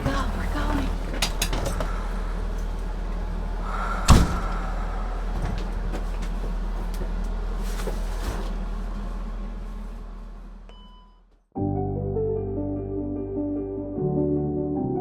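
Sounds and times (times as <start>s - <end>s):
steady low hum: 0.0s - 10.6s
vehicle door slamming shut: 4.0s - 4.7s.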